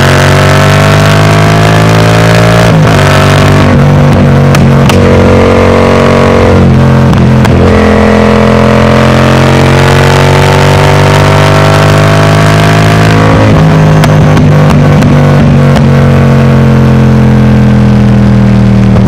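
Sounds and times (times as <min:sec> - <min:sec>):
motorcycle engine loud exhaust: 0:00.0 - 0:19.0.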